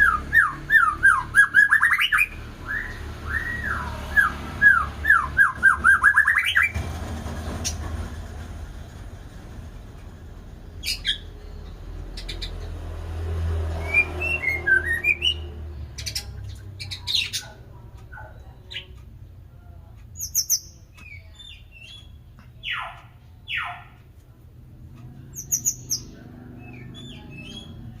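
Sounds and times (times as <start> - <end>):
bird singing: 0.0 - 6.8, 10.6 - 12.9, 13.7 - 19.0, 20.2 - 24.0, 25.2 - 28.0.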